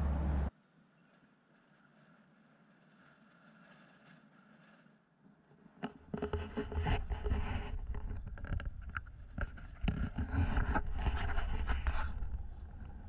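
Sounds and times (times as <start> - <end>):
wind rumble on microphone: 6.3 - 13.0.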